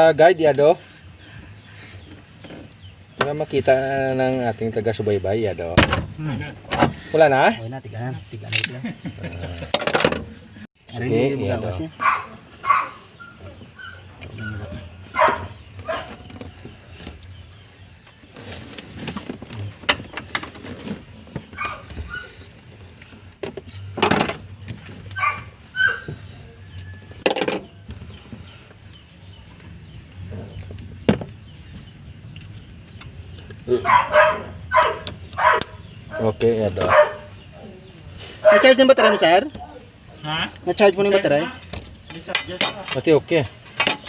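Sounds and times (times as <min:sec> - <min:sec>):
dog barking: 0:12.0 - 0:16.2, 0:21.6 - 0:22.3, 0:25.2 - 0:26.1, 0:33.7 - 0:37.4, 0:38.4 - 0:39.4.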